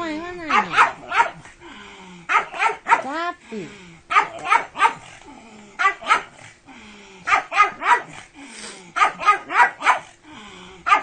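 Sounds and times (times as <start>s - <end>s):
dog barking excitedly: 0.4s - 1.5s, 2.3s - 3.2s, 4.1s - 5.2s, 5.8s - 6.4s, 7.3s - 8.2s, 8.9s - 10.2s.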